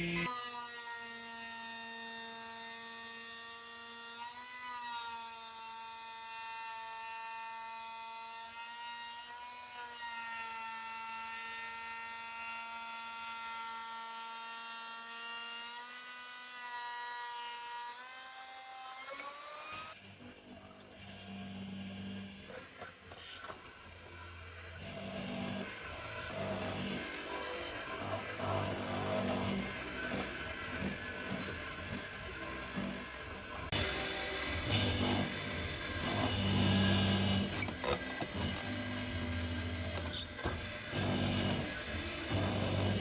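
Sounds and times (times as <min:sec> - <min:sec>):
power tool motor whining: 0:00.0 - 0:43.0.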